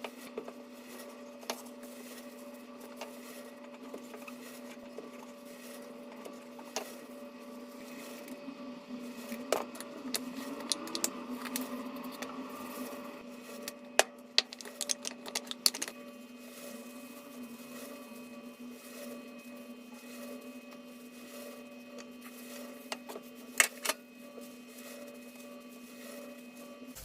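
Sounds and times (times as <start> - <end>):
appliance hum: 0.0 - 27.0
utensils tapping and clicking: 9.2 - 12.9, 13.6 - 16.0.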